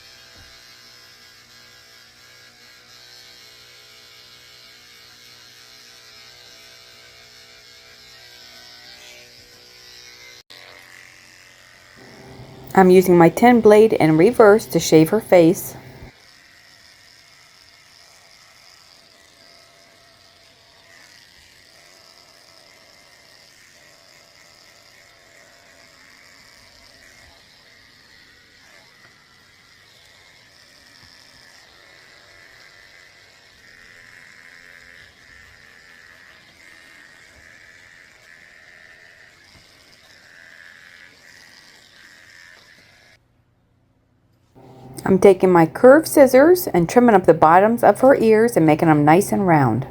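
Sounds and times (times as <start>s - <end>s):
electric clippers humming: 0.0s - 16.7s, 44.6s - 49.0s.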